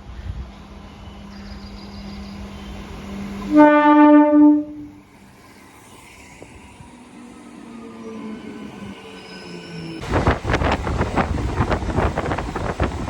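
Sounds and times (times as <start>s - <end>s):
electric train running: 0.0s - 13.0s
train horn blast: 1.7s - 5.0s.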